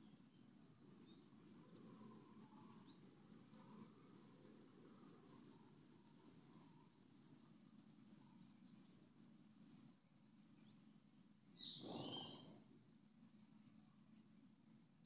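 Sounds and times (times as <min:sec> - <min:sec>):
faint outdoor ambience: 0:00.0 - 0:15.0
burst of bird calls: 0:11.6 - 0:12.7.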